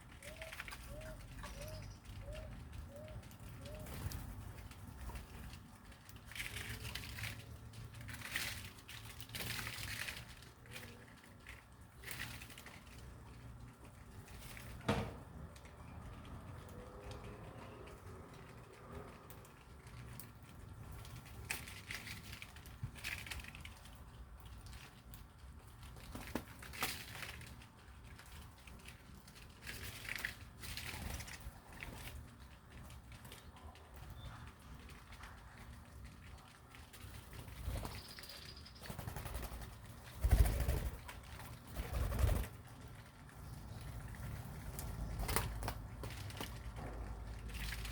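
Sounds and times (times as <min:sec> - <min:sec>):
birds rustling and crackling: 0:00.0 - 0:47.9
faint dove coos: 0:00.2 - 0:04.0.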